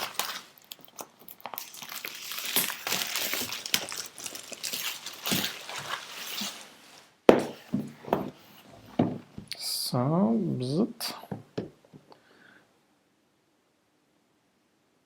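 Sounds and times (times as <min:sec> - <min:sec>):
packaging crinkling and tearing: 0:00.0 - 0:07.0.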